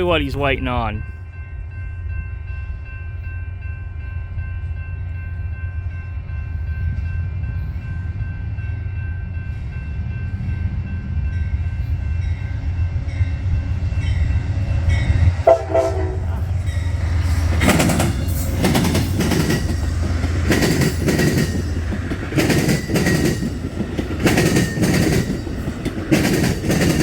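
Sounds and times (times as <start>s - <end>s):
diesel locomotive rumble: 6.5s - 27.0s.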